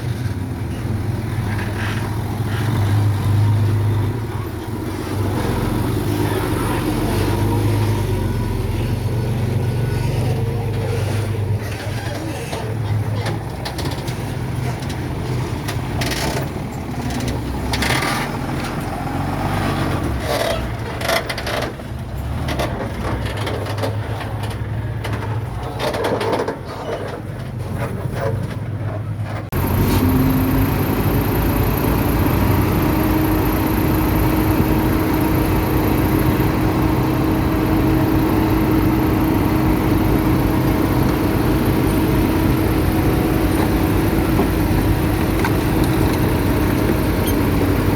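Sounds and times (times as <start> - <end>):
scraping and clanking dirt: 0.0 - 8.2, 8.8 - 47.9
bulldozer diesel engine: 0.0 - 47.9
engine whine: 29.5 - 47.9.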